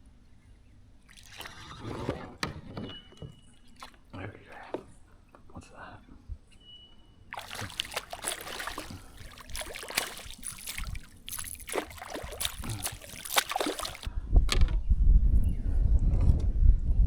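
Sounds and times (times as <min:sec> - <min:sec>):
splashing in shallow water: 0:01.1 - 0:02.1, 0:07.3 - 0:14.1.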